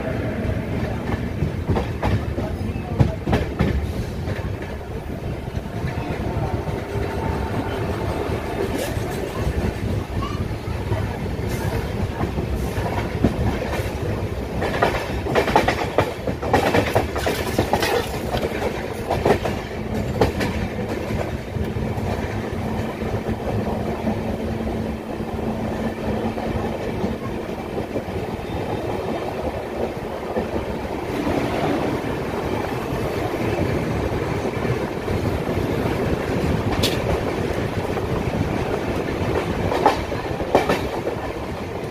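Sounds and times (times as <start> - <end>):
train rumbling on track: 0.0 - 41.9
wheels clacking on rail joints: 0.8 - 41.9.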